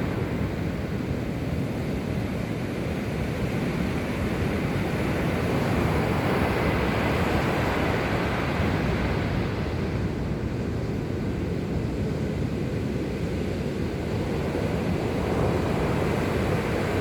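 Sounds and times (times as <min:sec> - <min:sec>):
surf washing onto shore: 0:00.0 - 0:10.6, 0:13.0 - 0:17.0.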